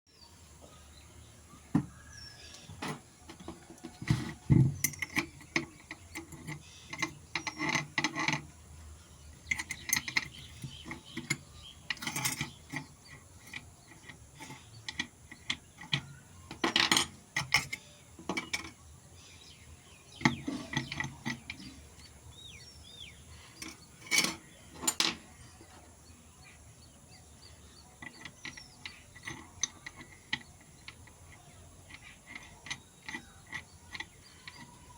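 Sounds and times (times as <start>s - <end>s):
angle grinder handling clatter: 2.7s - 8.5s, 9.4s - 18.8s, 20.2s - 21.9s, 23.6s - 25.3s, 28.0s - 34.9s.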